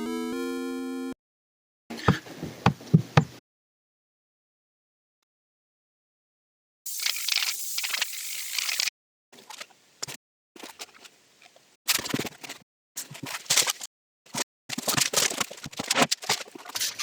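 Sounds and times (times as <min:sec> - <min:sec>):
scraping and rattling handling noise: 0:11.9 - 0:17.0.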